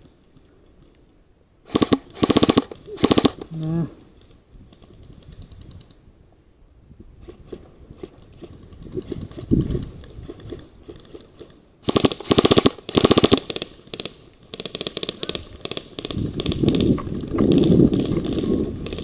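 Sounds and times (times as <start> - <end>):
faint bursts of rapid fire: 1.6 - 3.6, 7.2 - 19.0
airsoft rifle full-auto bursts: 1.7 - 3.5, 10.3 - 19.0.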